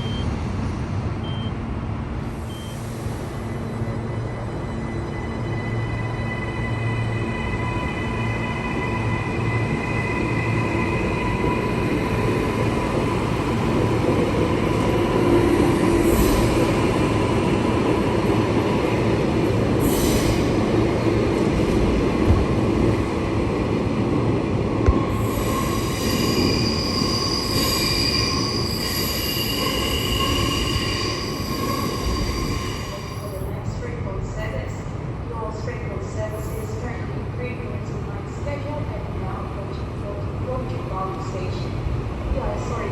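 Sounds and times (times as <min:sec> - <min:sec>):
electric train rumbling: 0:00.0 - 0:42.9.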